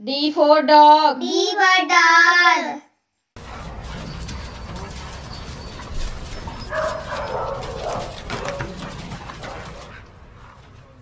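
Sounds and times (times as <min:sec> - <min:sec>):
dogs vocalizing: 0:03.4 - 0:11.0.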